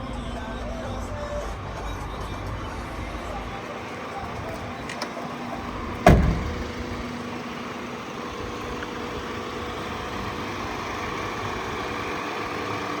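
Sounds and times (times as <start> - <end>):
van engine idling: 0.0 - 13.0
loud thump: 5.9 - 7.1.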